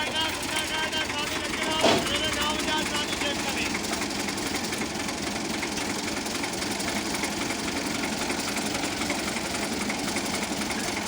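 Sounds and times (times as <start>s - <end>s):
diesel tractor engine chugging: 0.0s - 11.0s.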